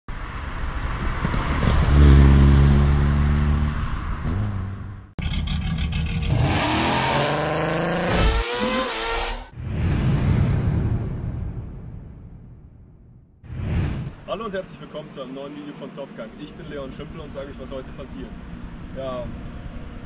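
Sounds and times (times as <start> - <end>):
car engine revving: 1.6 - 9.6.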